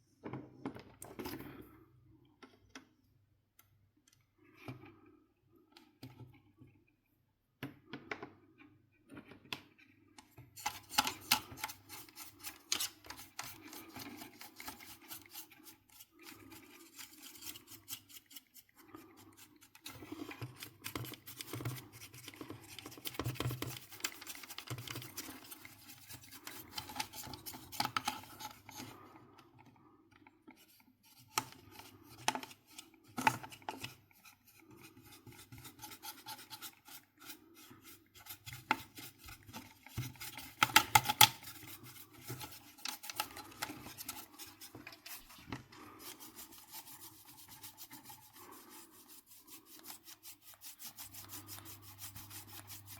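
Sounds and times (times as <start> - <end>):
scraping and rubbing: 10.6 - 29.1, 30.5 - 52.9.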